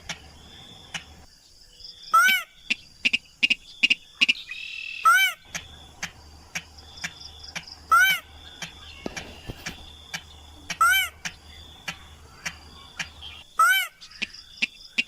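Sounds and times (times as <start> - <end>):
high insect trill: 0.0 - 15.0
sharp ticking bird notes: 0.0 - 15.0
rail bird calls rising and falling: 2.1 - 15.0.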